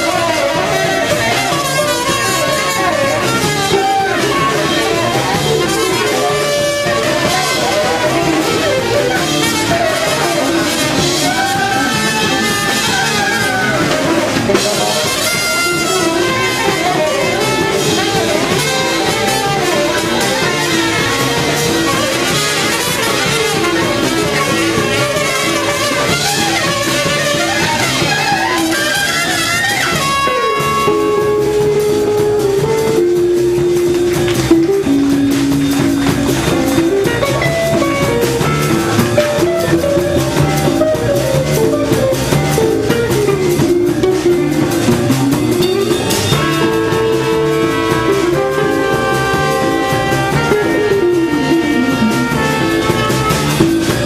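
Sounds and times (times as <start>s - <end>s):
jazz band playing: 0.0s - 54.0s.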